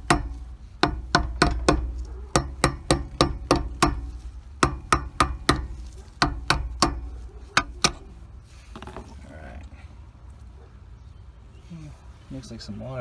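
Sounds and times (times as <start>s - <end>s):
hammer striking metal: 0.0s - 8.2s.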